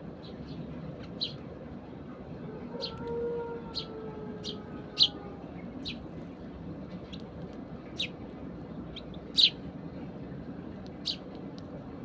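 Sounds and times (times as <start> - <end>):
steady background noise: 0.0 - 12.0
sparrows chirping: 0.1 - 1.5, 3.7 - 6.2, 7.0 - 9.7, 10.9 - 11.4.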